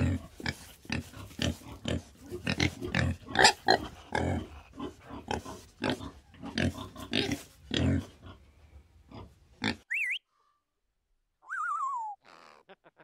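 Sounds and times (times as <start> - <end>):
pigs grunting and oinking: 0.0 - 9.9
parrot whistling calls: 9.9 - 10.2, 11.4 - 12.2.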